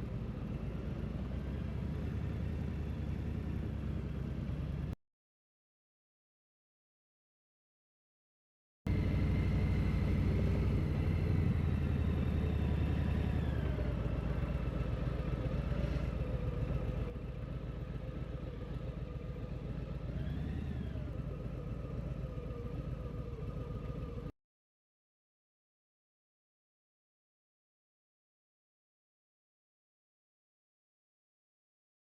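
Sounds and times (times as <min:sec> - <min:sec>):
motorcycle engine running: 0:08.9 - 0:24.3.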